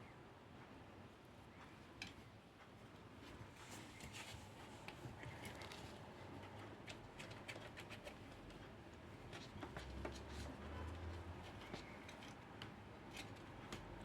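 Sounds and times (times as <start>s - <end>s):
light irregular clicks and taps: 11.0s - 14.0s.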